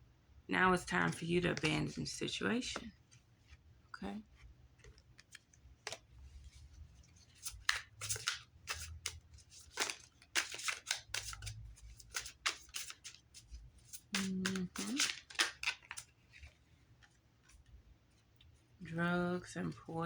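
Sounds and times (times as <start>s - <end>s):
cards being shuffled: 4.3s - 17.7s.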